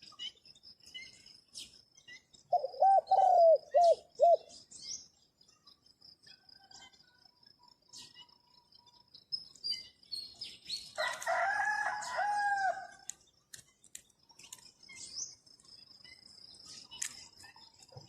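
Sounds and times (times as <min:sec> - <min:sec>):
small birds chirping: 0:00.0 - 0:18.0
rooster crowing: 0:11.0 - 0:13.0.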